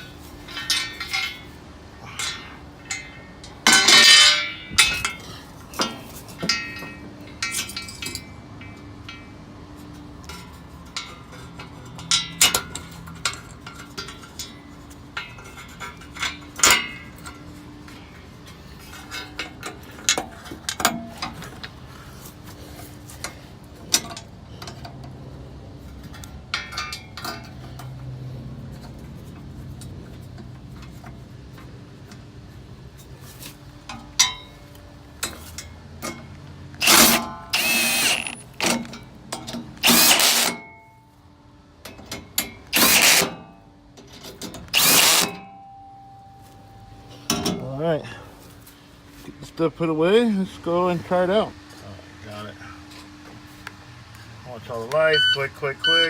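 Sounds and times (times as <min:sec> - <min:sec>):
metal parts clanking: 0:00.0 - 0:09.2, 0:36.8 - 0:40.7, 0:41.9 - 0:45.6
power drill short bursts: 0:36.8 - 0:38.7, 0:39.8 - 0:40.6, 0:42.8 - 0:43.2, 0:44.7 - 0:45.4.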